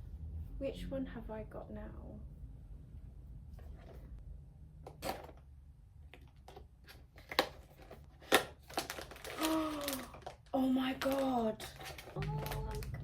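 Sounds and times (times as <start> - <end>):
packaging crackling and tearing: 7.2 - 13.0.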